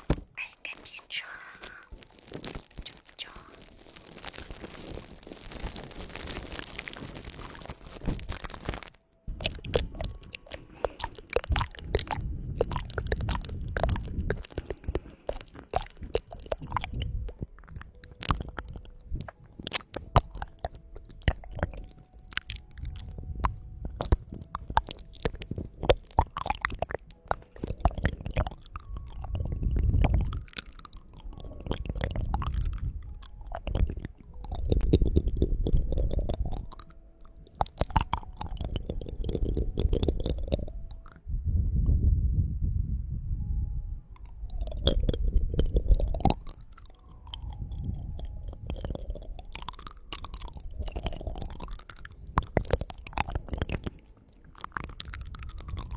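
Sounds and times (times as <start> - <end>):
crisp clicks and crackles: 0.0 - 41.2, 44.2 - 55.9.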